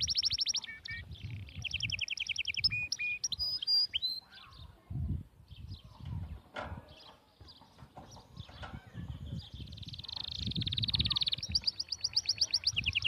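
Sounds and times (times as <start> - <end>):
small bird singing: 0.0 - 13.0.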